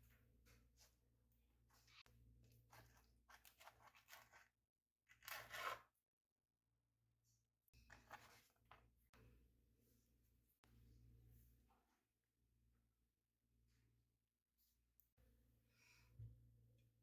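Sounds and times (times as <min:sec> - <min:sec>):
soft rustles of food preparation: 0:00.0 - 0:06.0, 0:07.8 - 0:09.2.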